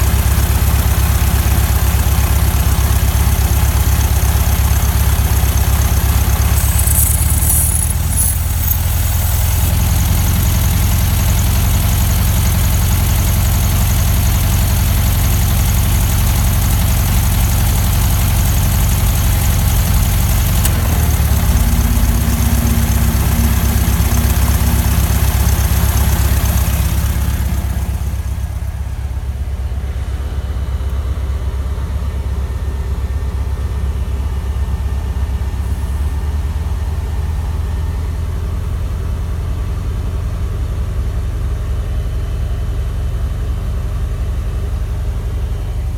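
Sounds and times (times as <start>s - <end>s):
car engine running: 5.7s - 10.0s.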